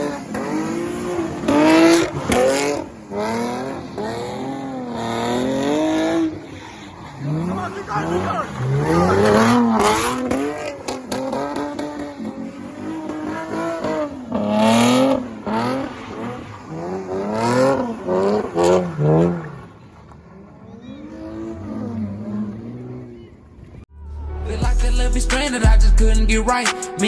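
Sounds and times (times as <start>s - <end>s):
car engine revving: 0.0s - 26.5s.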